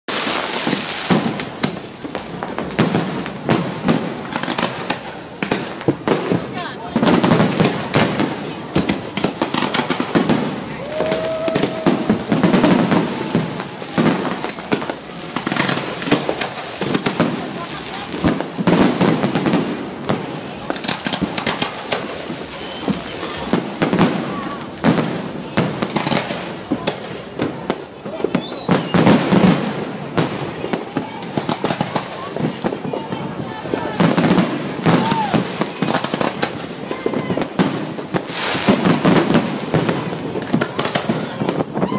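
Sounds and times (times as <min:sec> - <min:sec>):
fireworks crackling: 0:00.0 - 0:41.9
firecracker bangs: 0:00.1 - 0:41.9
people's voices: 0:00.2 - 0:41.9.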